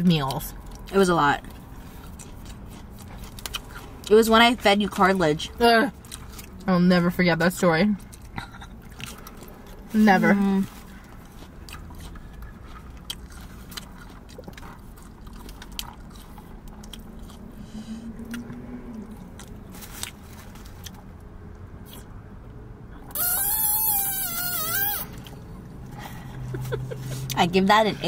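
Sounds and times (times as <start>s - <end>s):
chewing and crunching food: 0.0s - 22.2s.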